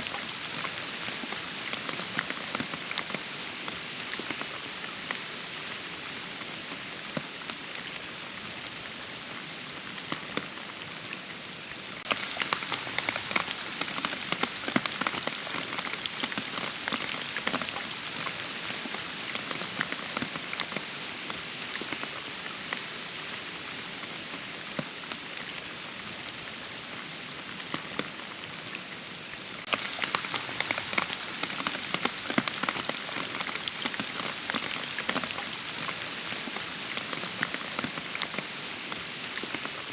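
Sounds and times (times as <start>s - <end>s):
steady rain: 0.0s - 39.9s
close raindrop hits: 12.0s - 22.9s, 29.6s - 39.9s.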